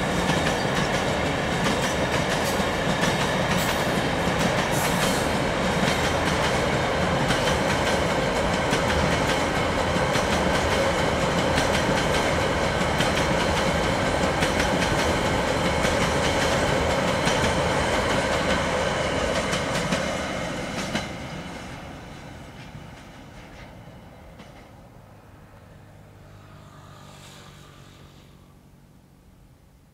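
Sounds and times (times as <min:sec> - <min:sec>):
rail-joint clicks: 0:22.5 - 0:24.8.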